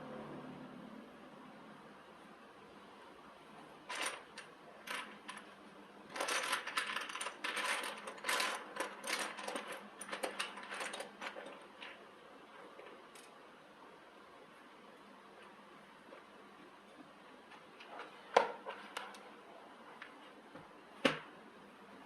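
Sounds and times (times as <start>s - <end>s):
metallic clicks and rattles: 6.1s - 12.0s.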